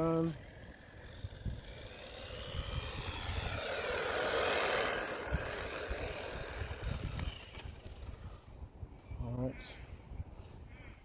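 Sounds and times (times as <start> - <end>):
toy car electric motor whining: 0.0 - 8.5.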